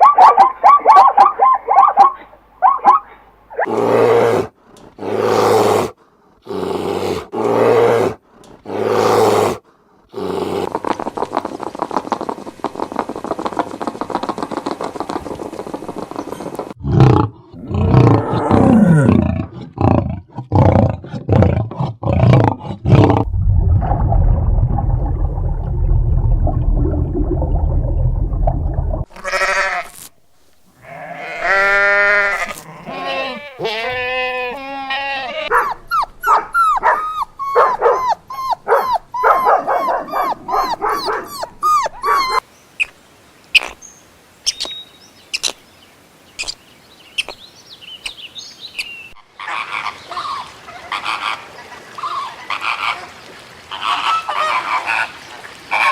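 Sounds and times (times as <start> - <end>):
low steady rumbling: 23.2 - 29.1
bleat-like animal calls: 29.1 - 30.1, 30.8 - 35.5.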